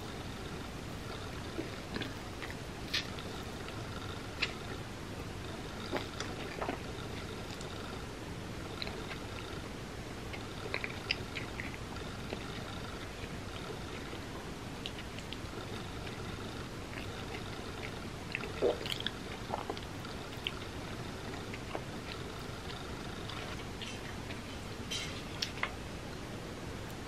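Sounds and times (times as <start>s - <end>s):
steady low hiss: 0.0s - 27.0s
wet chewing and mouth smacks: 1.1s - 4.8s, 14.8s - 24.6s.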